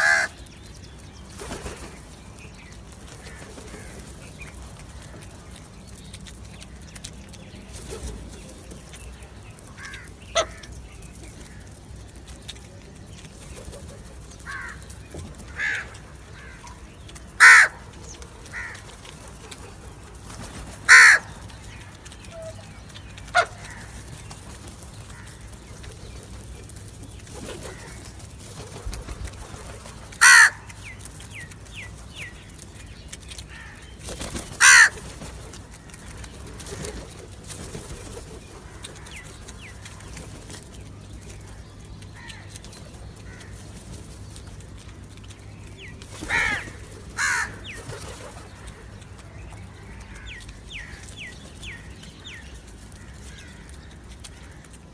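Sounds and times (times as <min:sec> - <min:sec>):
crow cawing: 0:00.0 - 0:00.4, 0:14.4 - 0:14.8, 0:15.5 - 0:16.6, 0:17.4 - 0:17.8, 0:18.5 - 0:18.8, 0:20.9 - 0:21.3, 0:30.2 - 0:30.7, 0:34.6 - 0:35.0, 0:46.3 - 0:47.6
small birds chirping: 0:00.0 - 0:54.9.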